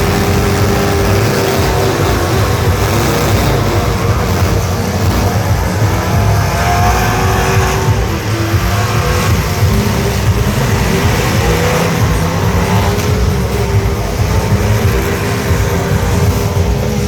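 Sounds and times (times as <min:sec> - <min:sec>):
truck engines revving: 0:00.0 - 0:17.0.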